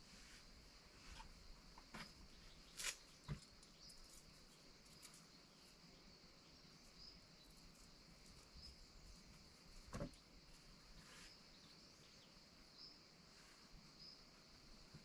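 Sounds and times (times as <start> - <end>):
faint high hiss: 0.0 - 15.0.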